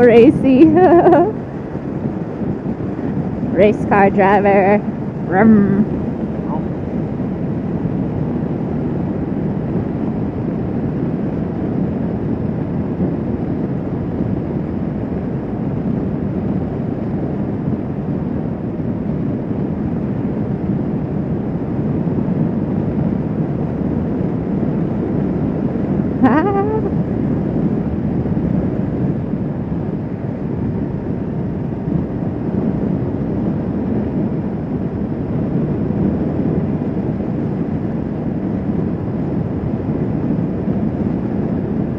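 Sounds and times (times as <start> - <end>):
wind and road noise: 0.0 - 41.9
brief voice-like sound: 26.2 - 26.9.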